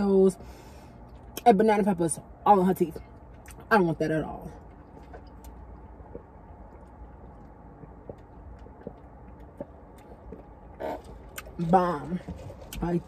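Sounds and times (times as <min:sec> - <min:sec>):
steady low hum: 0:00.0 - 0:13.0
person chewing: 0:04.6 - 0:11.6.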